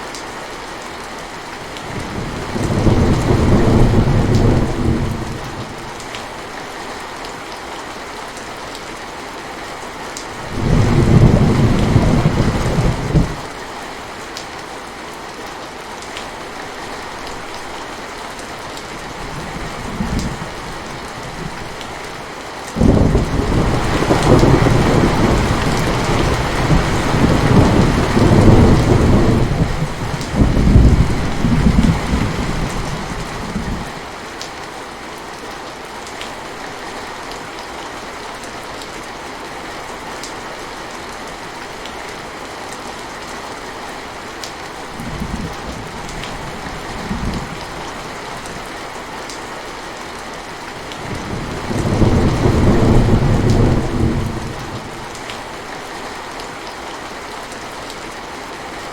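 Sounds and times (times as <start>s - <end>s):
steady rainfall: 0.0s - 58.9s
thunder rumbling: 2.0s - 5.8s, 10.4s - 13.5s, 22.8s - 33.9s, 51.0s - 55.2s.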